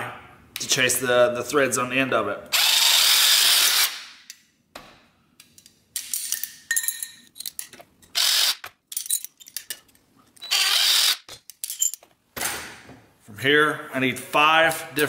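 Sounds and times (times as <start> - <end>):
power drill: 2.5 - 4.0, 8.2 - 8.6, 10.4 - 11.3
metal parts clinking: 5.5 - 8.1, 8.8 - 10.5, 11.3 - 12.1.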